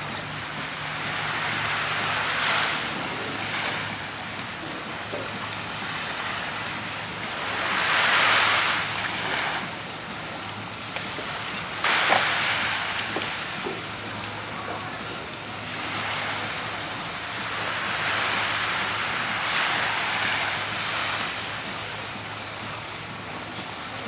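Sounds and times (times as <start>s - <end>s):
sea waves breaking: 0.0s - 24.0s.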